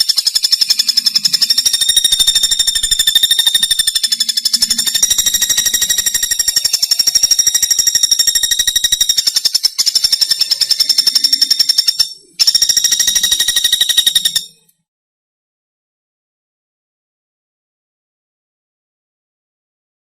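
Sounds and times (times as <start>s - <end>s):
woodpecker trilling call: 0.0s - 14.7s.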